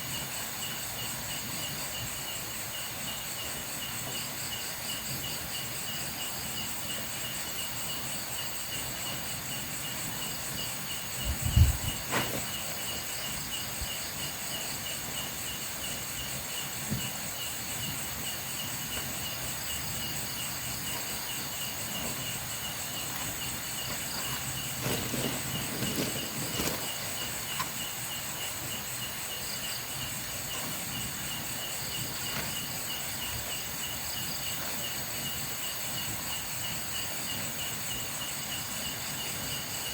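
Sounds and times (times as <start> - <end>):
night insects chirping: 0.0 - 39.9
soft knocks or rustles: 11.3 - 12.7, 23.2 - 27.7.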